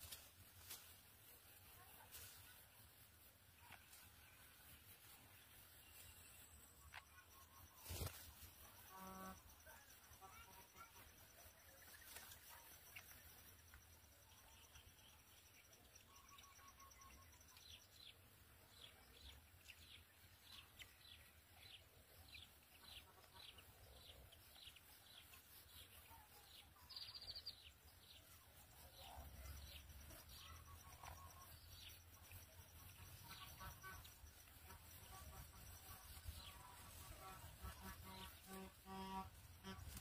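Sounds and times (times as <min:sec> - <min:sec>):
faint bird chirps: 0:03.6 - 0:40.0.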